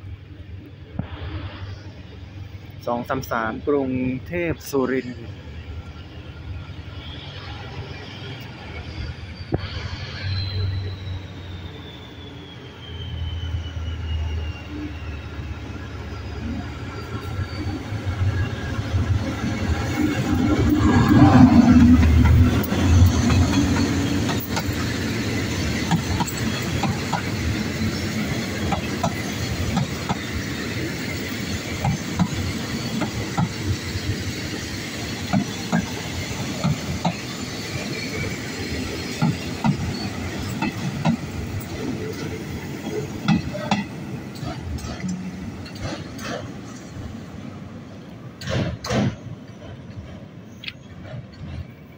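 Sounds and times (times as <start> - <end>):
train wheels clacking over joints: 20.2 - 37.5, 38.7 - 47.0, 48.4 - 51.9.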